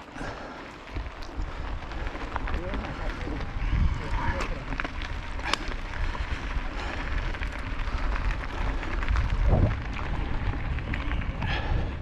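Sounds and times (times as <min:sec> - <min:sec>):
tyres crackling over ground: 0:00.0 - 0:12.0
wind on microphone: 0:00.9 - 0:12.0.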